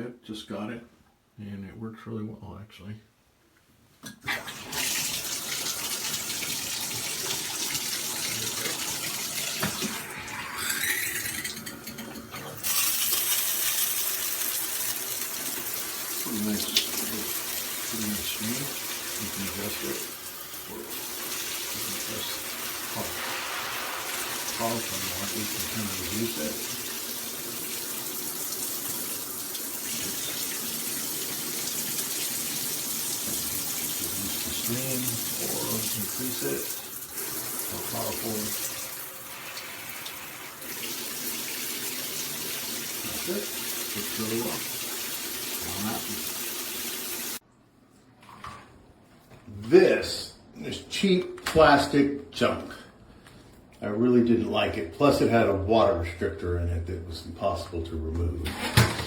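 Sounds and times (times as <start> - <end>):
shower head spraying water: 12.6 - 47.4.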